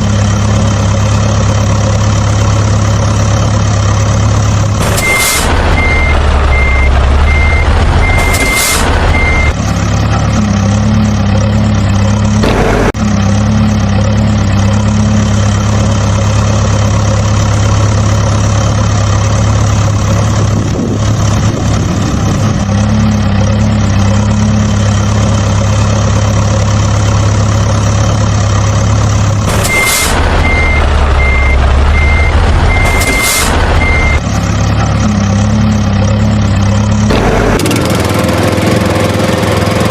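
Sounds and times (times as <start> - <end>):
truck engine running: 0.0 - 39.9
reversing beeper beeps: 5.0 - 9.5, 29.7 - 34.2.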